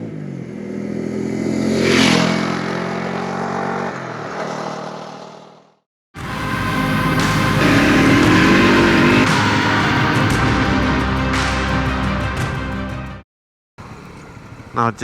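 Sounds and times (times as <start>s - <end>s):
rushing noise: 6.2s - 10.4s
motorcycle engine running: 6.2s - 10.5s.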